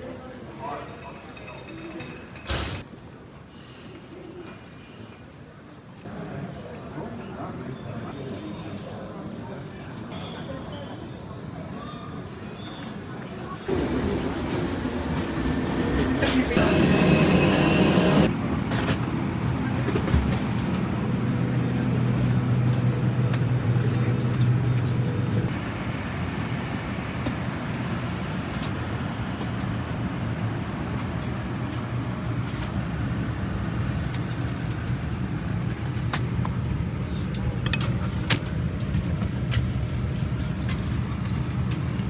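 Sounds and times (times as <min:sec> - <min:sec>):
low hum: 0:13.7 - 0:18.3
moving vehicle rumble: 0:13.7 - 0:33.5.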